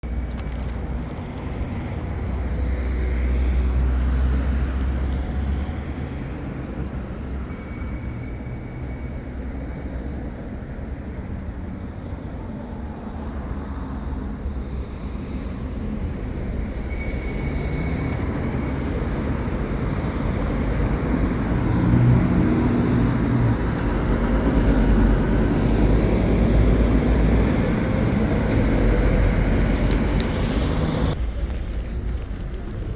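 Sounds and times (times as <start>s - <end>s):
heavy vehicle engine: 0.0s - 32.9s
road traffic passing: 0.0s - 32.9s.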